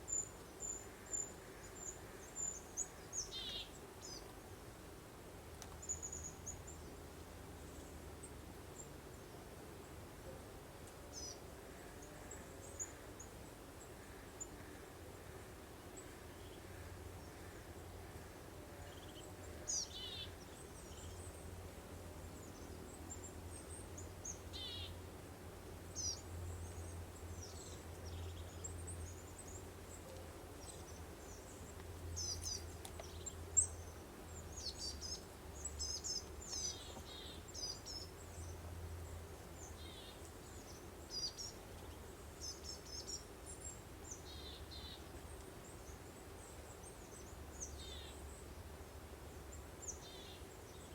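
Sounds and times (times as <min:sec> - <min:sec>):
songbirds chirping and trilling: 0:00.0 - 0:04.7, 0:10.8 - 0:21.6, 0:25.9 - 0:50.9
soft steady breeze: 0:00.0 - 0:50.9.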